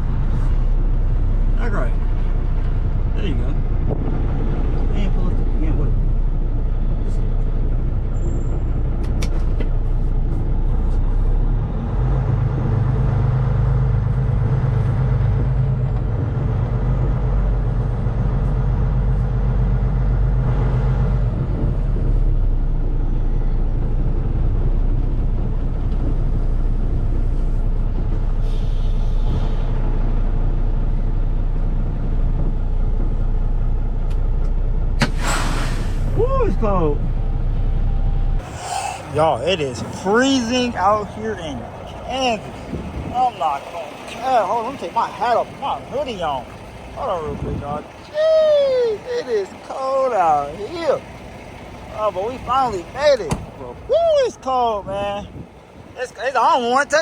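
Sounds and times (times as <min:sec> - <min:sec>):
truck diesel engine droning: 0:00.0 - 0:57.0
short hiss: 0:35.0 - 0:36.1.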